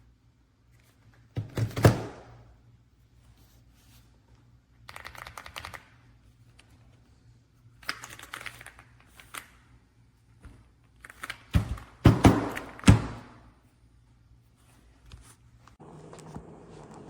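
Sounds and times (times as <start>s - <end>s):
mechanical keyboard typing: 4.9s - 5.9s, 7.8s - 9.5s, 11.0s - 12.8s.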